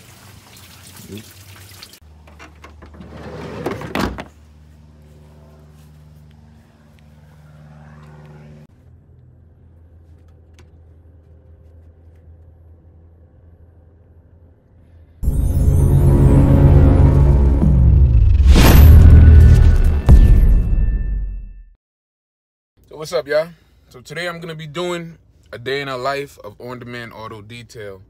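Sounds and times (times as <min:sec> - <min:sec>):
music: 0:15.2 - 0:21.4.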